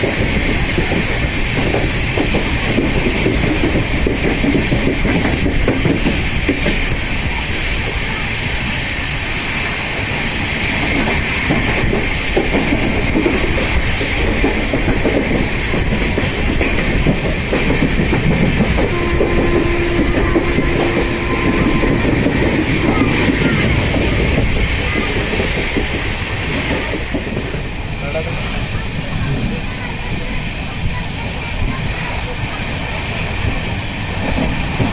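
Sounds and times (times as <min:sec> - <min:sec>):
train wheels clattering over rails: 0:00.0 - 0:34.9
steady tone: 0:18.9 - 0:25.0.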